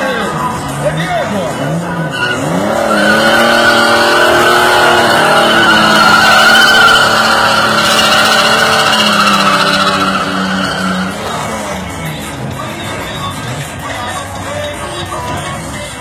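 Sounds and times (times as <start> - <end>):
car engine revving hard: 1.5 - 13.7.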